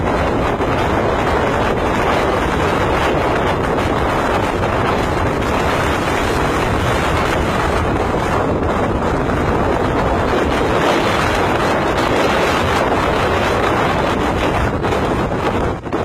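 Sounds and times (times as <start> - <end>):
strong wind on microphone: 0.0 - 16.0.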